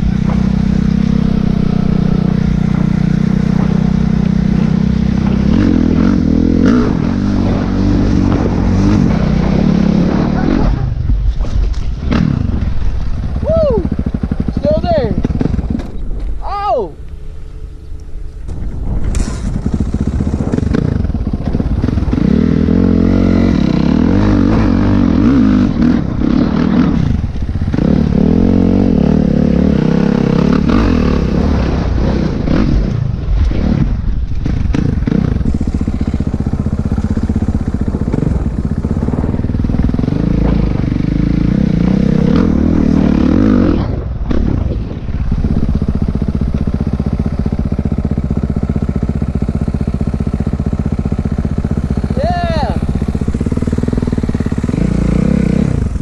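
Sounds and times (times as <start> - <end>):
dirt bike engine revving: 0.0 - 11.1, 11.9 - 56.0.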